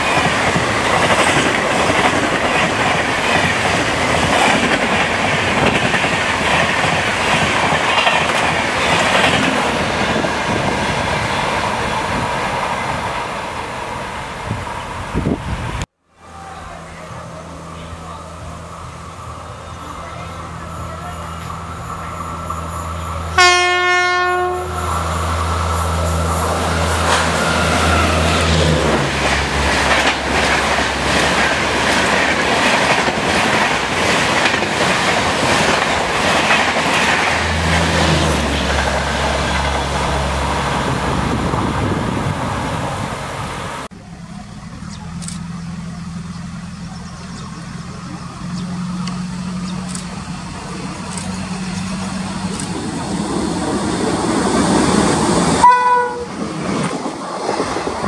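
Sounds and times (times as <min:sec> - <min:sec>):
train wheels rushing and clattering: 0:00.0 - 0:15.4, 0:24.6 - 0:43.1
approaching train rumble: 0:00.0 - 0:58.0
locomotive horn blast: 0:23.3 - 0:25.2, 0:27.0 - 0:29.0, 0:55.6 - 0:56.4.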